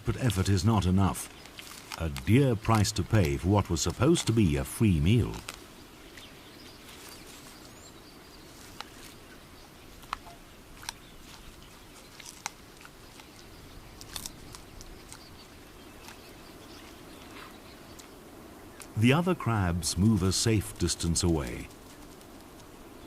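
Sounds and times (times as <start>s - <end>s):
faint outdoor ambience: 0.0s - 23.0s
sharp clicks and cracks: 1.2s - 4.4s, 10.0s - 11.4s, 14.0s - 15.3s.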